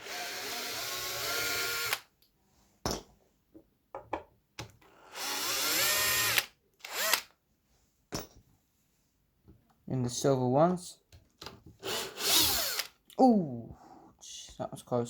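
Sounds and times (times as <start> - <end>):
power drill motor whine: 0.0 - 2.0, 4.9 - 7.3, 11.8 - 12.9.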